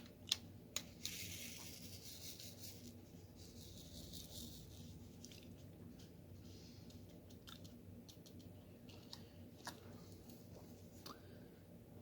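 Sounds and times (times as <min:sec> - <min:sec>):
soft rubbing hiss: 0:01.0 - 0:05.3.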